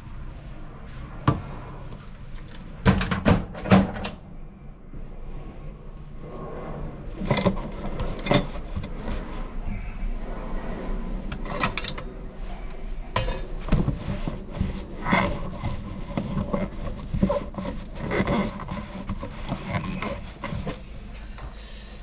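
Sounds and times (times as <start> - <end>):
scraping and rubbing: 6.0 - 21.5.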